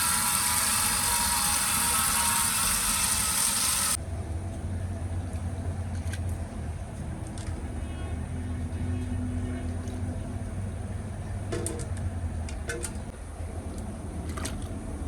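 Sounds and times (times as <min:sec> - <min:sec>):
loud steady hiss: 0:00.0 - 0:04.0
low hum: 0:00.0 - 0:04.2.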